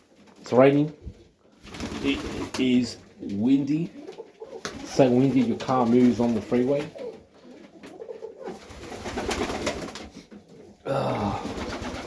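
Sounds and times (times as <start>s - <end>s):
pigeons cooing: 3.8s - 12.0s.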